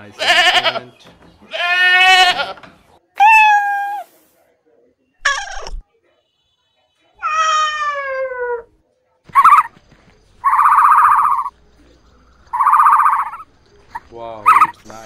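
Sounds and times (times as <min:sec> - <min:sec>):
buzzy pulsing animal call: 0:12.5 - 0:13.4.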